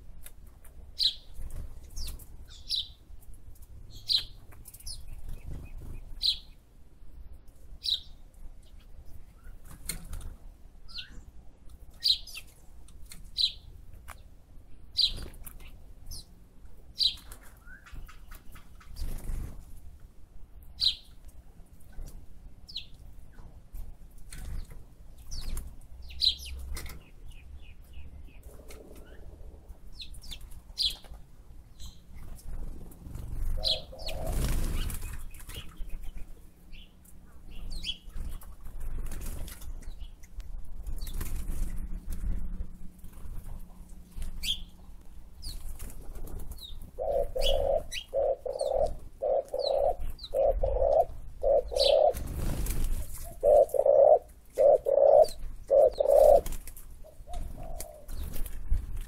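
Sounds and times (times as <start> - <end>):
lower repeating bird call: 47.0 - 52.2, 53.4 - 56.4.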